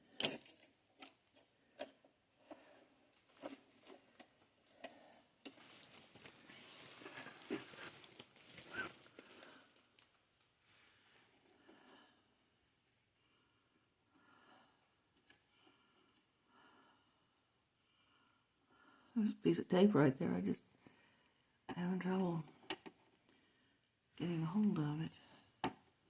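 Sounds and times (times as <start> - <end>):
rustling and tearing tape: 3.1 - 10.2
plastic packaging crinkling: 5.4 - 10.2.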